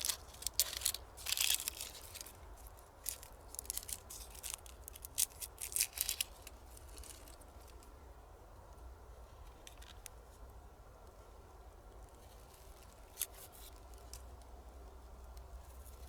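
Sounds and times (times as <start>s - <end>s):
crackling and snapping: 0.0s - 7.8s.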